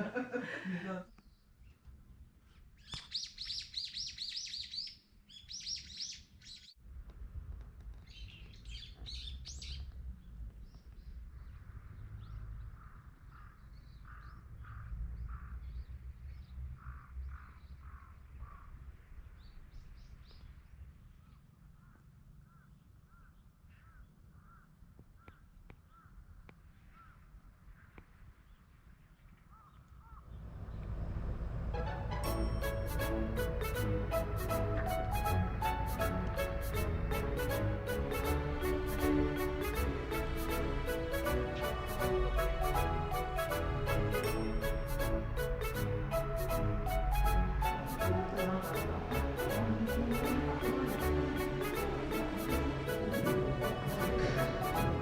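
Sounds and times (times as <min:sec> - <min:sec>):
small birds chirping: 0:01.1 - 0:06.8, 0:07.9 - 0:20.6
low steady rumble: 0:30.3 - 0:35.6.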